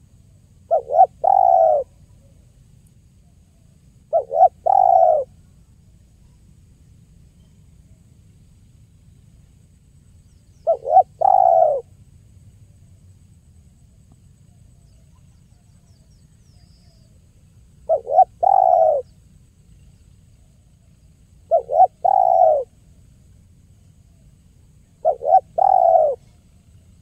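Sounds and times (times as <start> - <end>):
dove cooing: 0.7 - 2.0, 4.1 - 5.4, 10.6 - 11.9, 17.8 - 19.2, 21.4 - 22.7, 24.8 - 26.8.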